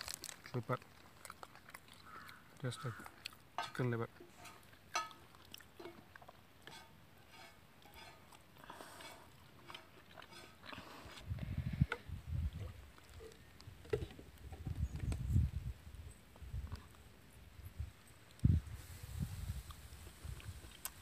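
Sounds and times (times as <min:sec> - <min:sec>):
chewing and mouth smacks: 0:00.0 - 0:03.5, 0:04.5 - 0:06.9, 0:07.8 - 0:13.7, 0:19.6 - 0:21.0.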